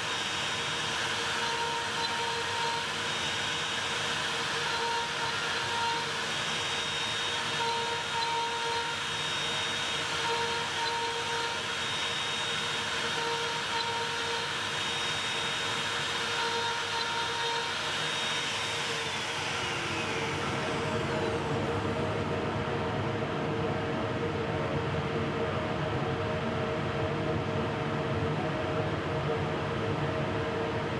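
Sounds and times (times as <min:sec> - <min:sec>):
router whining hum: 0:00.0 - 0:22.8.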